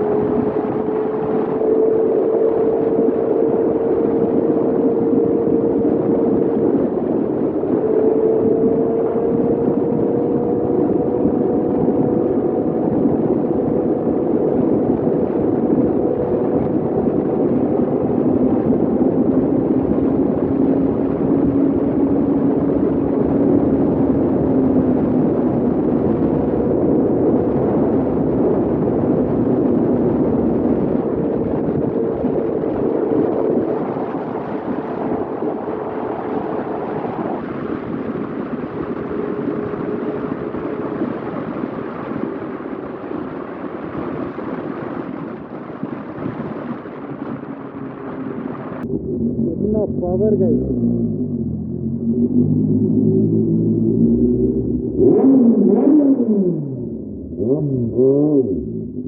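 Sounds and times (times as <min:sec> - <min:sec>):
motorcycle engine at high revs: 0:00.0 - 0:28.7, 0:50.4 - 0:59.0
wind rush over microphone: 0:00.0 - 0:59.0.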